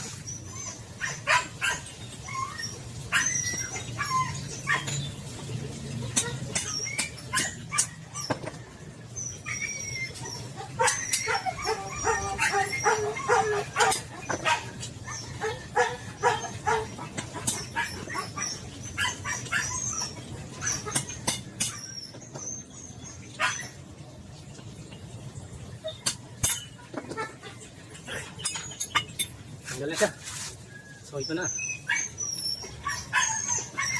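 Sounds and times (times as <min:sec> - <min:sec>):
dog whining and yipping: 0:00.0 - 0:05.2, 0:06.0 - 0:23.8, 0:30.6 - 0:33.9.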